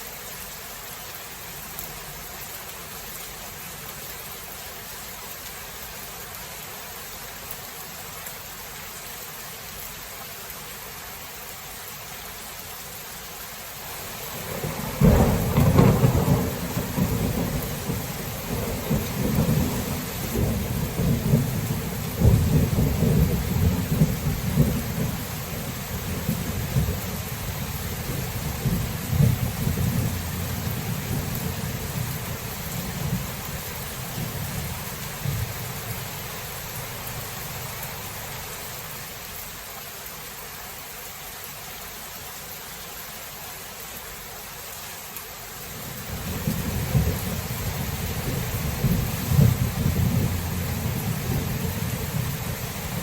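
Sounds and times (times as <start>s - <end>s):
steady rain: 0.0s - 53.0s
thunder rumbling: 14.2s - 38.2s, 46.0s - 53.0s.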